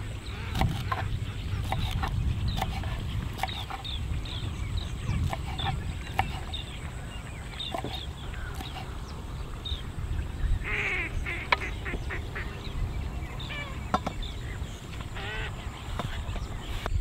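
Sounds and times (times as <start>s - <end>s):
short bird calls: 10.5s - 16.9s.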